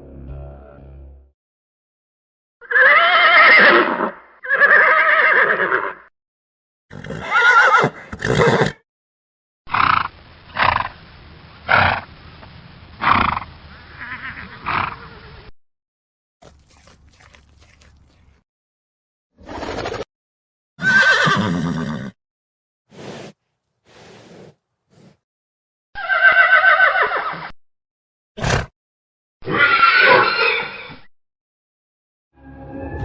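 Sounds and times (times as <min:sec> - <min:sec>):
horse neighing: 0:02.6 - 0:06.0, 0:06.9 - 0:08.8, 0:20.8 - 0:22.2, 0:26.0 - 0:27.4.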